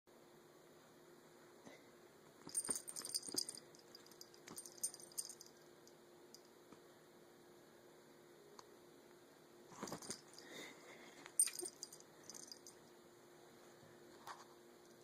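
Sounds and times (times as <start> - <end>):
metal chain jingling: 2.5 - 5.5, 9.8 - 10.5, 11.4 - 12.8.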